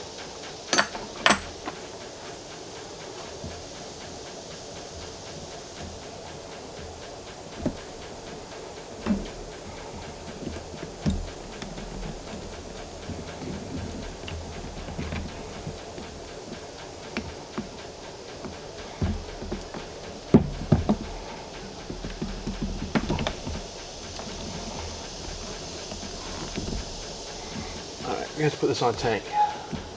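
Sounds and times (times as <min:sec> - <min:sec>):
low background hum: 0:00.0 - 0:29.9
metal parts knocking and clicking: 0:00.7 - 0:01.9.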